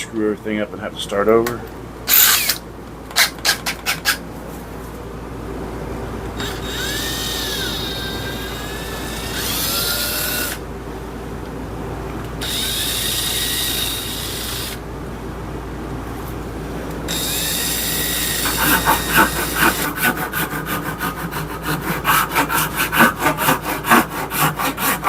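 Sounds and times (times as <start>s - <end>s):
power drill whining: 2.1s - 2.6s, 6.4s - 10.6s, 12.4s - 14.8s, 17.1s - 20.1s.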